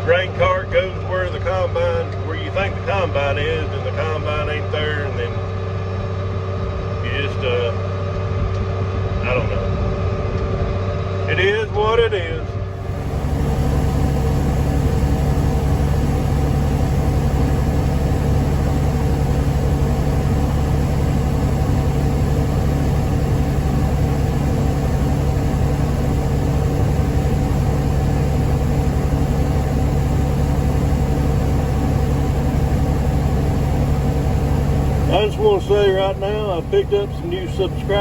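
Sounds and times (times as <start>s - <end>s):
tractor engine running: 12.7s - 38.0s.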